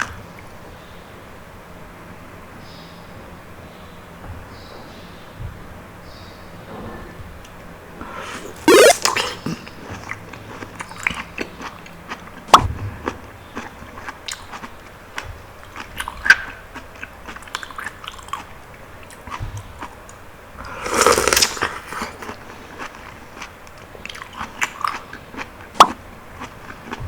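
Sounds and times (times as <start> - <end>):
person chewing juicy fruit: 0.0 - 0.6, 8.0 - 27.0
wet mouth clicks: 8.0 - 12.7, 15.7 - 19.4, 20.6 - 27.0.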